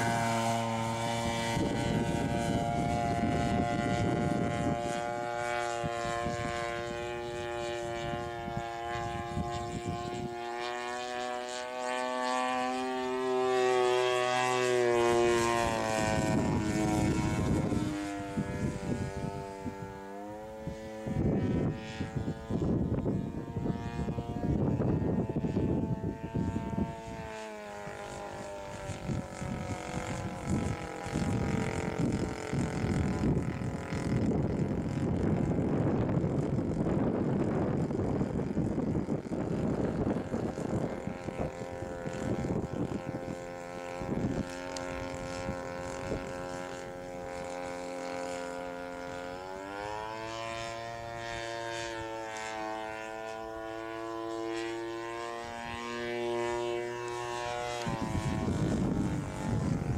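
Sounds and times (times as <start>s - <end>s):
two-stroke engine driving propeller: 0.0s - 59.9s
gusty rushing noise: 28.3s - 43.4s, 57.9s - 59.9s.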